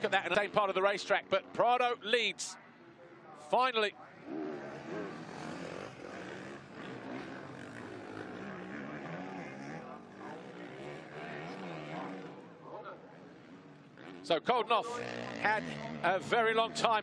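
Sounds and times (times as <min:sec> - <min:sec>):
motocross bike engine revving: 0:04.2 - 0:16.9.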